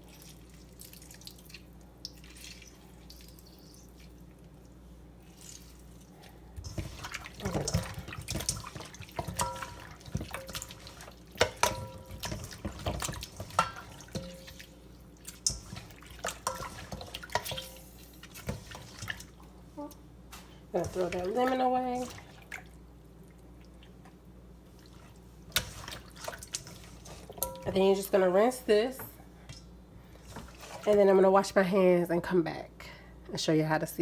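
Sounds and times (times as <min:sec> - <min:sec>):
faint steady hum: 0:00.0 - 0:34.0
water splashing in sink: 0:06.6 - 0:19.4, 0:20.7 - 0:22.8, 0:24.8 - 0:27.9.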